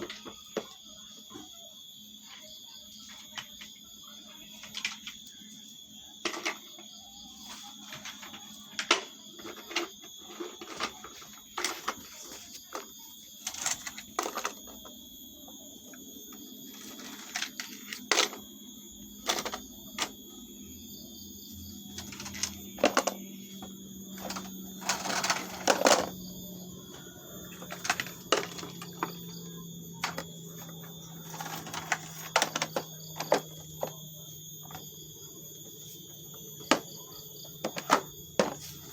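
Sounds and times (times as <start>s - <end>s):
plastic toys clicking and clacking: 7.8s - 14.8s, 19.2s - 20.2s, 21.9s - 26.2s, 26.9s - 29.3s, 30.0s - 34.0s
steady low hum: 13.3s - 38.9s.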